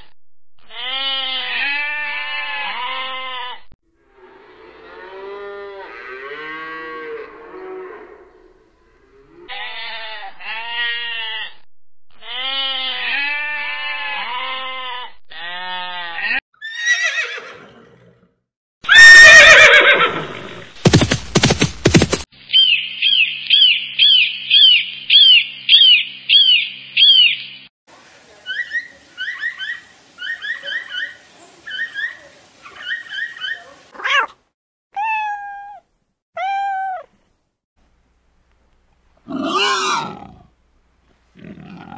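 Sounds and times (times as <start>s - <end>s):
rising and falling animal calls: 39.3s - 40.5s.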